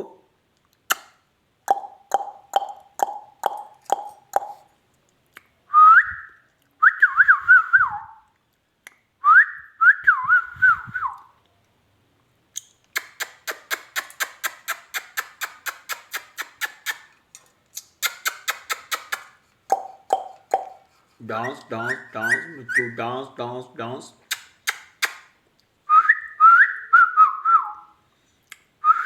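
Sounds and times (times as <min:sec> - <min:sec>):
parrot warbling whistles: 0:21.4 - 0:23.0.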